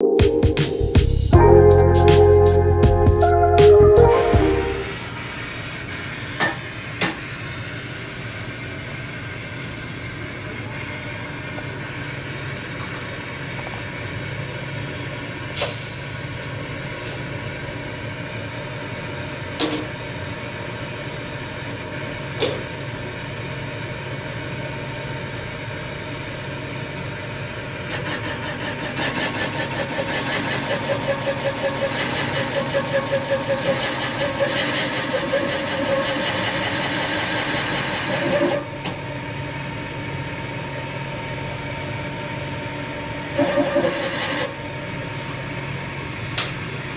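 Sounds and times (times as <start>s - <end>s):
machinery hum: 0.0s - 13.5s
machine running with rhythmic pulsing: 27.9s - 38.7s, 43.0s - 44.6s.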